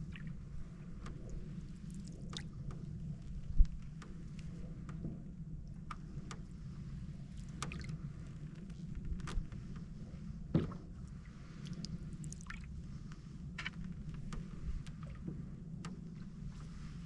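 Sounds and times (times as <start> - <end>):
low rumble: 0.0 - 17.0
water dripping off paddle: 7.3 - 8.0.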